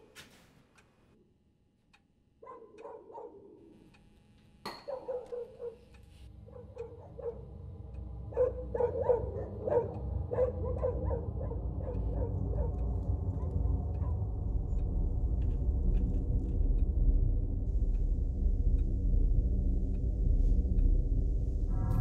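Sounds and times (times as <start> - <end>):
animal yelps and whines: 4.9 - 5.9, 8.3 - 14.2
low rumble: 9.5 - 22.0.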